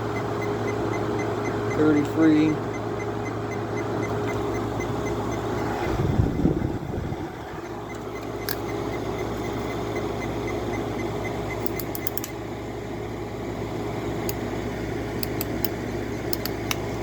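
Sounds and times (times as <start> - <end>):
air conditioner humming: 0.0 - 17.0
short light clicks: 11.6 - 12.4, 15.2 - 16.8.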